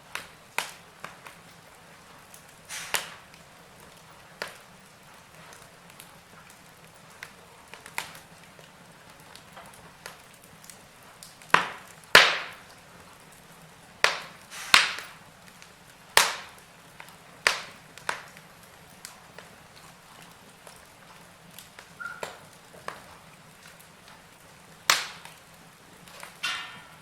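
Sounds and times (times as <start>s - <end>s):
faint steady hiss: 0.0s - 27.0s
wood fire crackling: 0.0s - 27.0s
sharp pops: 2.7s - 3.3s, 11.4s - 12.7s, 14.0s - 15.2s, 16.2s - 18.4s, 24.9s - 25.4s.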